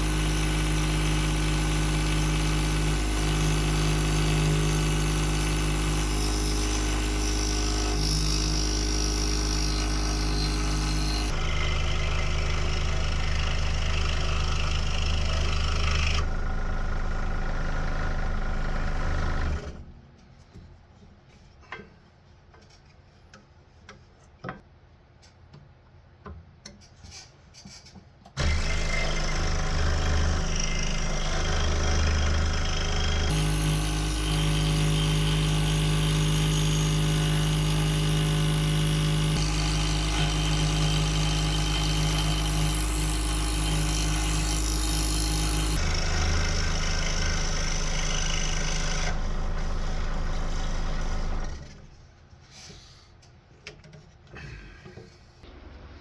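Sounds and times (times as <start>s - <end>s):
scroll saw cutting wood: 0.0s - 19.8s, 28.4s - 51.9s.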